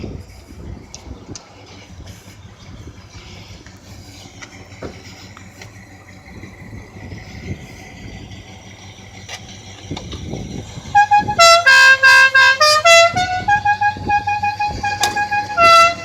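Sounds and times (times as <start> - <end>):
musical car horn tune: 10.8 - 16.0.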